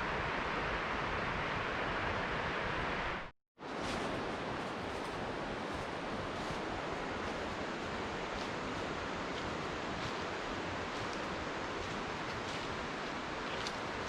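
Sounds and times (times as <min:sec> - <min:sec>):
running water rushing: 0:03.7 - 0:14.0.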